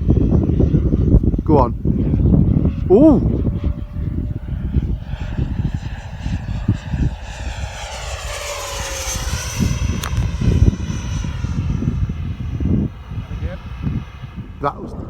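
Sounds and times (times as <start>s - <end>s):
model jet whining past: 0.0s - 15.0s
wind buffeting microphone: 0.0s - 15.0s
sharp click: 10.0s - 10.3s.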